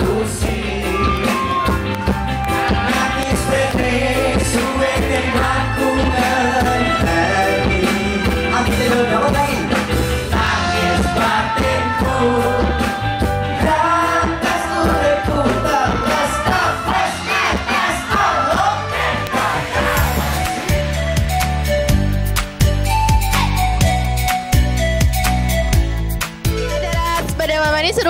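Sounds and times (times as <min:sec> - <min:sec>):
pop-rock song with singing: 0:00.0 - 0:21.4.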